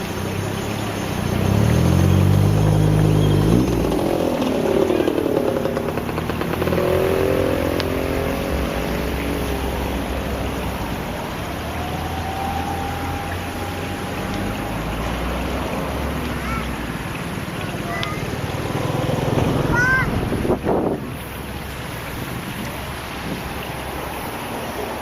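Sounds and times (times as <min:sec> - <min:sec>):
outdoor noise: 0:00.0 - 0:25.0
vehicle engine revving: 0:00.0 - 0:25.0.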